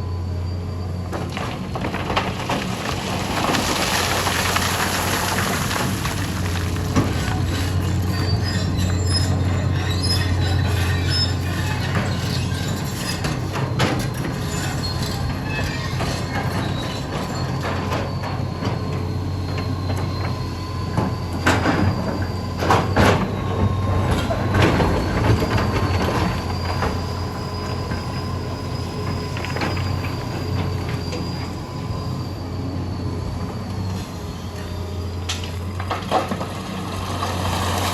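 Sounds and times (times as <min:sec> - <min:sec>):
high squeal: 0:00.0 - 0:01.3, 0:07.2 - 0:35.7
excavator diesel engine: 0:00.0 - 0:37.9.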